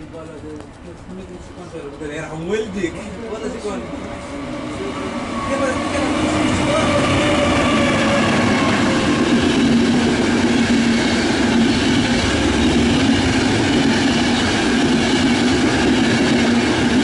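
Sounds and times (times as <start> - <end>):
train wheels rumbling and rattling: 0.0 - 17.0.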